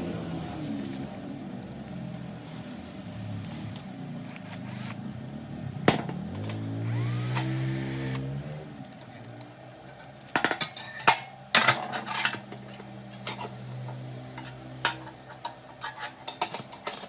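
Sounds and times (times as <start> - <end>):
electric drill motor whining: 4.4 - 5.0, 6.8 - 8.2.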